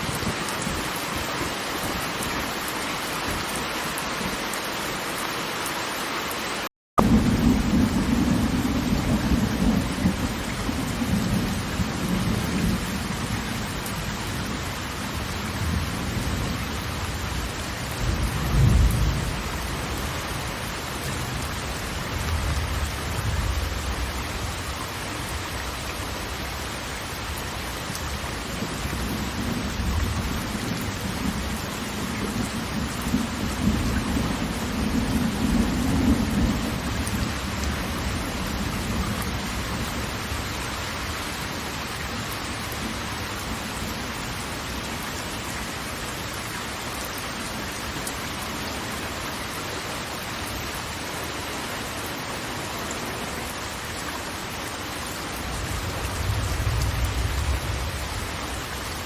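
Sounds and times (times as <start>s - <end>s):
rushing water: 0.0s - 59.0s
steady rain: 0.0s - 59.0s
rolling thunder: 7.0s - 24.7s, 28.0s - 40.4s, 55.5s - 58.8s.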